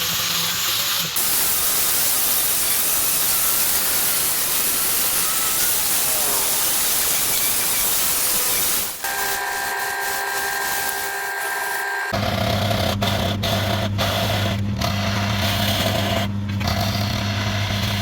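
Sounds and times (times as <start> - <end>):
loud steady hiss: 1.2 - 11.2.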